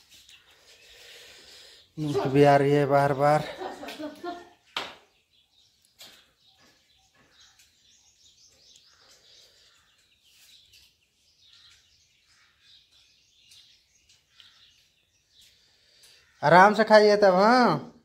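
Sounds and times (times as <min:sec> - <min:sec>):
faint bird chirps: 0:04.5 - 0:16.6.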